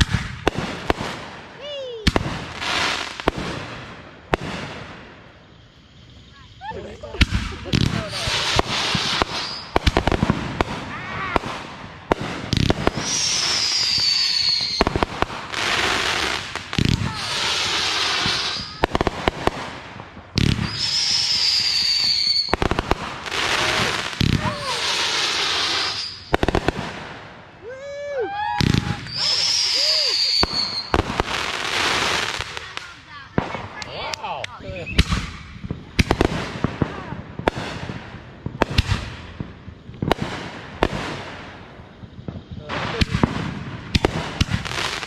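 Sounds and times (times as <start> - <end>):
firework hissing: 0.0 - 45.0
fireworks bangs and crackles: 0.0 - 45.0
people shouting: 10.8 - 11.5, 16.7 - 19.1, 23.3 - 25.3, 27.6 - 30.7
high falling whistle: 13.0 - 14.8, 20.7 - 22.5, 27.6 - 31.0.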